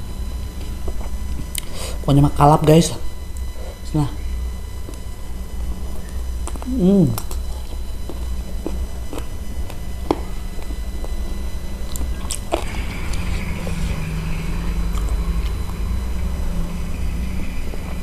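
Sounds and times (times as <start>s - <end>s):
low hum: 0.0s - 18.0s
biting and chewing smacks: 6.4s - 11.2s.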